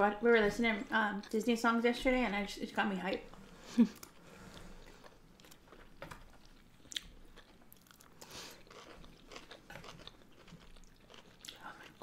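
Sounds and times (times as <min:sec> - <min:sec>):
chewing wet mouth sounds: 0:03.3 - 0:12.0.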